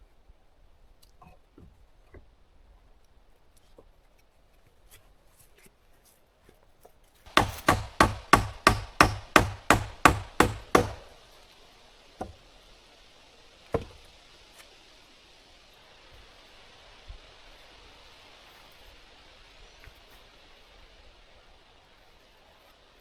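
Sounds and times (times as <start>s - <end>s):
hammer driving nail into wood: 7.3s - 11.2s.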